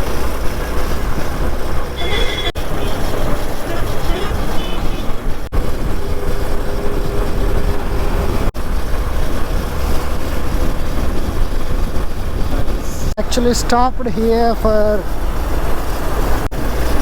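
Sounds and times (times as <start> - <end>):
wind rush on microphone: 0.0 - 13.5
motorcycle engine hum: 0.0 - 17.0.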